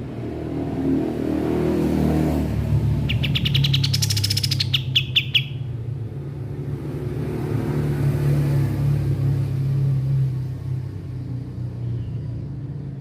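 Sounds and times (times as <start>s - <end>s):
low traffic rumble: 0.0s - 13.0s
songbird chirping: 3.0s - 5.8s.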